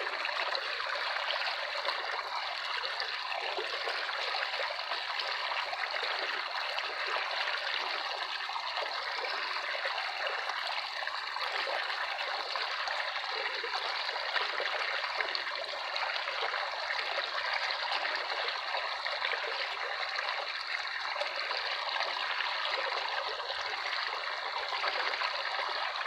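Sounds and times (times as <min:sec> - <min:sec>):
stream water trickling: 0:00.0 - 0:26.0.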